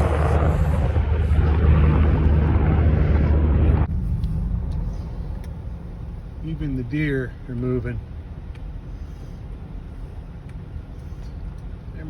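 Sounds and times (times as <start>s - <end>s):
helicopters rumbling: 0.0s - 7.6s
noisy buffeting: 0.0s - 12.0s.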